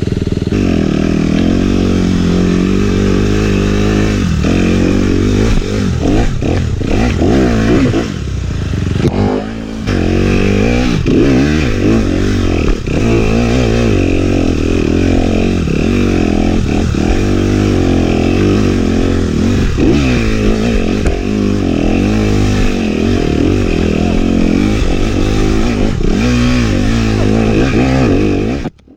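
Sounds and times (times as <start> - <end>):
dirt bike engine revving: 0.0 - 28.9.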